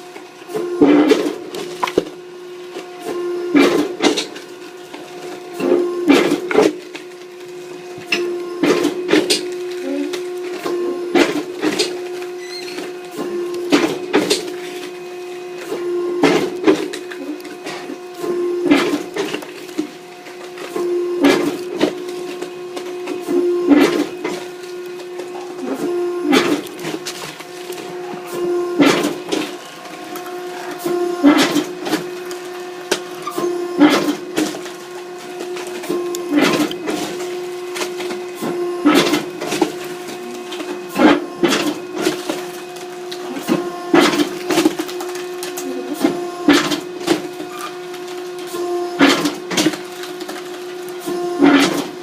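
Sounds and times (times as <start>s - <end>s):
hydraulic log splitter humming: 0.0s - 52.0s
wood cracking and splitting: 8.6s - 28.0s, 38.9s - 51.9s
wood cracking as it splits: 41.4s - 51.9s.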